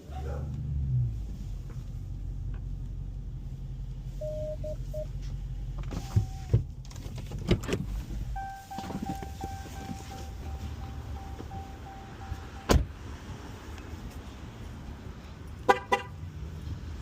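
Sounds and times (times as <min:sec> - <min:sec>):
car engine hum: 0:00.0 - 0:17.0
short electronic beeps: 0:04.2 - 0:05.1, 0:08.4 - 0:12.7.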